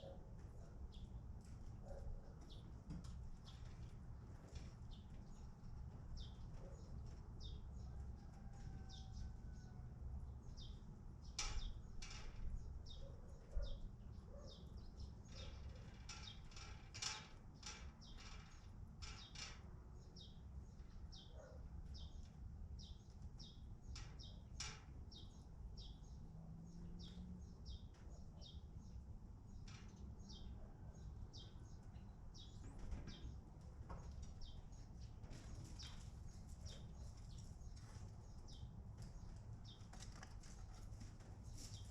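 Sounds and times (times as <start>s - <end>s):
small birds chirping: 10.4s - 16.7s, 17.6s - 40.8s.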